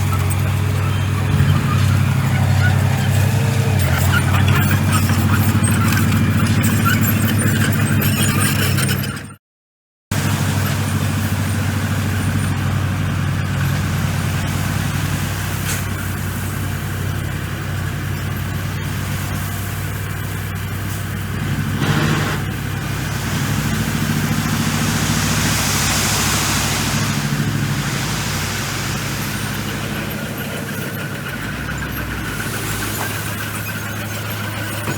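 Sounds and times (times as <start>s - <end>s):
bulldozer diesel engine: 0.0s - 9.3s, 10.1s - 34.9s
rush of noise: 22.6s - 33.6s
high hiss: 22.9s - 30.7s.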